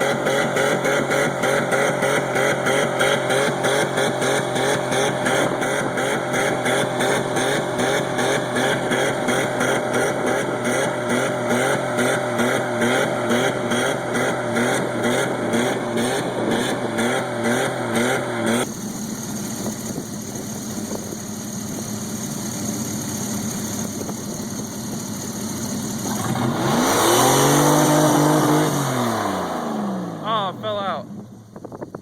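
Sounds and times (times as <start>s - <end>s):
engine revving up loudly: 0.0s - 18.8s, 25.9s - 31.0s
engine at high revs: 0.0s - 31.4s.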